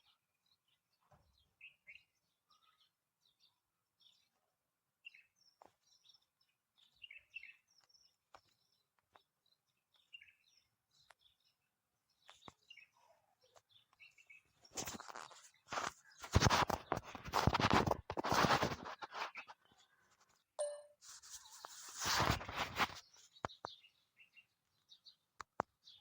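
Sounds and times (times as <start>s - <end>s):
faint bird chirps: 0.0s - 16.9s, 19.2s - 22.0s.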